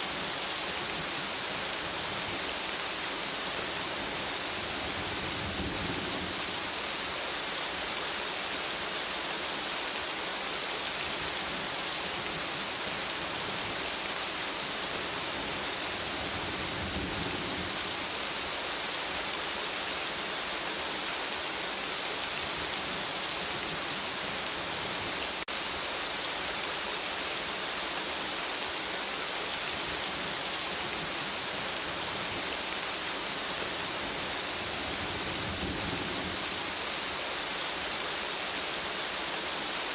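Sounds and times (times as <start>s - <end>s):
rain falling on foliage: 0.0s - 39.9s.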